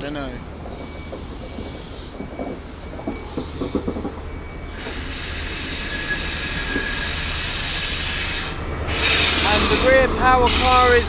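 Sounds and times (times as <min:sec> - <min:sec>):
train engine hum: 0:00.0 - 0:11.0
high-pitched wheel squeal: 0:04.7 - 0:11.0.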